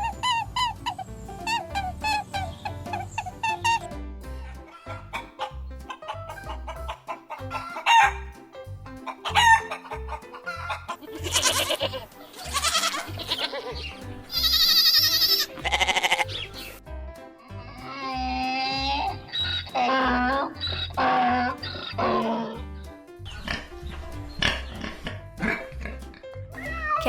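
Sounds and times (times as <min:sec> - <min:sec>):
background music with steady beat: 0:00.0 - 0:27.0
rooster crowing: 0:07.5 - 0:08.3, 0:09.2 - 0:09.8.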